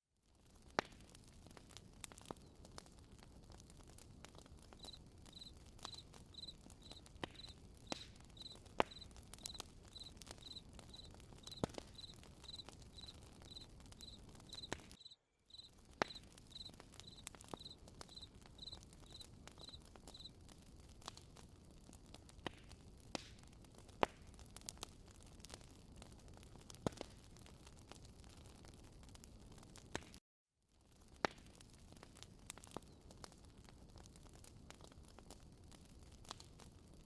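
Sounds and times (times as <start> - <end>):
campfire crackling and popping: 0.2 - 30.2, 30.8 - 37.0
cricket chirping: 4.8 - 7.5, 8.4 - 15.7, 16.5 - 20.3.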